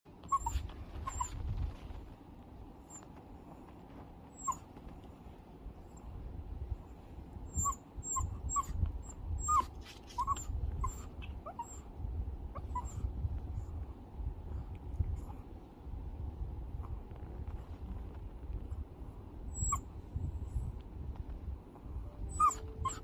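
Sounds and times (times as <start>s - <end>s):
dog whining in high squeaks: 0.2s - 1.9s, 4.3s - 4.8s, 7.5s - 11.9s, 12.5s - 13.1s, 19.5s - 19.9s, 22.2s - 23.0s
low rumble: 0.2s - 22.9s.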